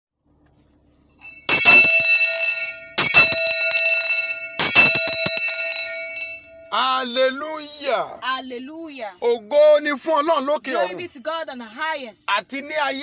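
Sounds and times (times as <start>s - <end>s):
metal bell ringing: 1.2s - 7.2s.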